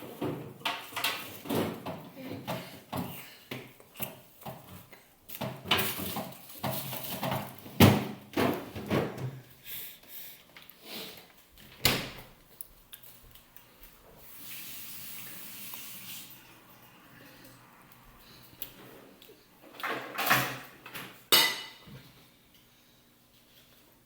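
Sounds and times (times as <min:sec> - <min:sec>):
tableware knocking and clattering: 0:21.3 - 0:21.9.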